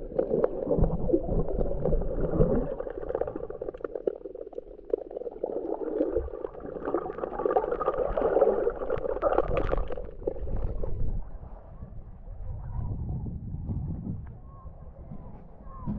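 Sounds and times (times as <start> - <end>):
muffled underwater water gurgling: 0.0 - 11.4.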